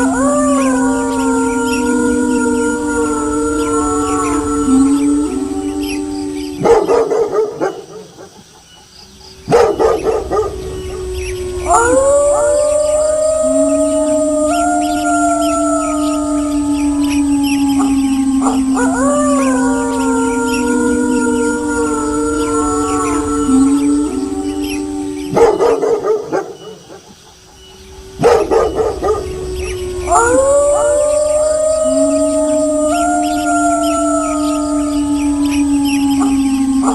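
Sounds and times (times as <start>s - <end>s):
wolves howling: 0.0s - 8.4s, 9.1s - 36.9s
dogs barking: 6.6s - 8.4s, 9.4s - 10.7s, 25.3s - 27.1s, 28.2s - 29.4s
rapid barking: 9.4s - 10.8s, 28.2s - 29.3s.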